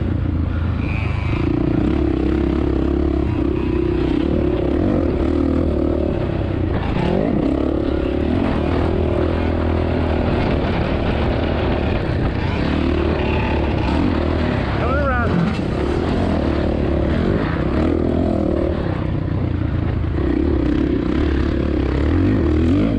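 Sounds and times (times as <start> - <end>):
wind rumbling on microphone: 4.0 - 17.7.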